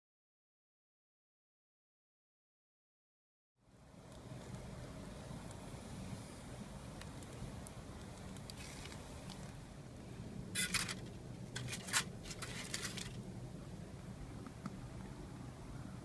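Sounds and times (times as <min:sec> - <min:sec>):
scraping rustling handling sounds: 0:10.6 - 0:13.2.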